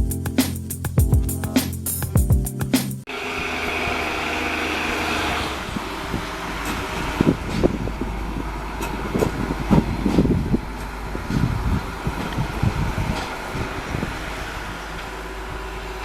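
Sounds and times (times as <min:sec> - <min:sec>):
background music: 0:00.0 - 0:03.1
diesel locomotive engine running: 0:03.1 - 0:16.0.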